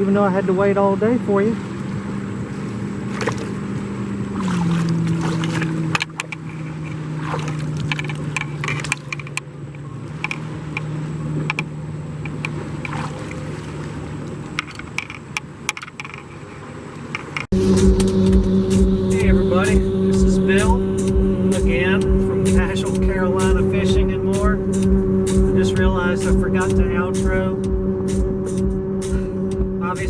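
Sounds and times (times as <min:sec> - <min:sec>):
boat engine running: 0:00.0 - 0:30.0
water splashes and drips: 0:04.4 - 0:09.4, 0:10.2 - 0:15.2.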